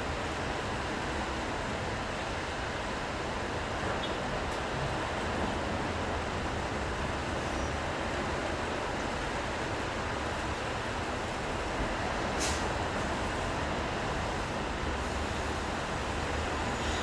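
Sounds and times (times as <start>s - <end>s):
rain hiss: 11.3s - 17.0s.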